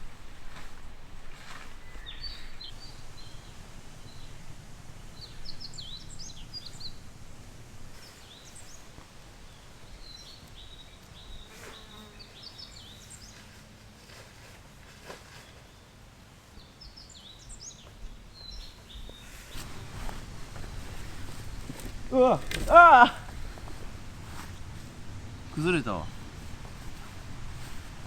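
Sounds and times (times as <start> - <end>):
small birds chirping: 0.0 - 13.8, 15.0 - 28.0
low steady hum: 2.5 - 11.4, 19.0 - 28.0.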